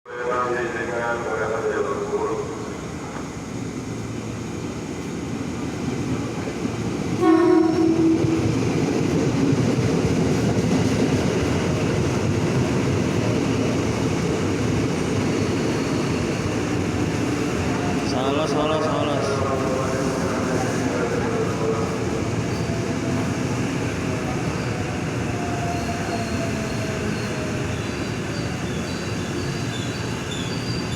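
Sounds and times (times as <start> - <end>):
electric train rumbling: 0.1 - 30.9
train horn: 7.2 - 8.5.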